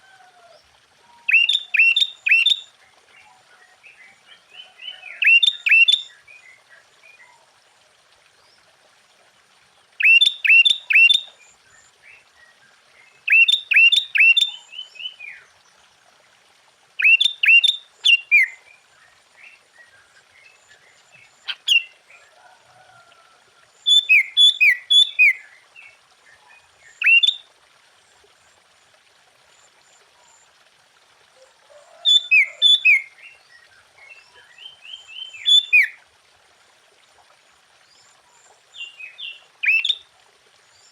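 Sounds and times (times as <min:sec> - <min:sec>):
bulbul singing: 0:01.3 - 0:02.6, 0:34.6 - 0:36.0.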